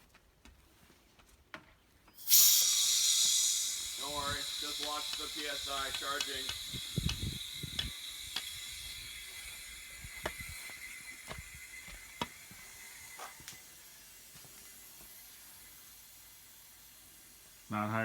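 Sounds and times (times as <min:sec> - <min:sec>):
faint whistle: 0:02.2 - 0:13.4
compressed air hissing: 0:02.2 - 0:18.0
sharp clicks: 0:02.6 - 0:12.4.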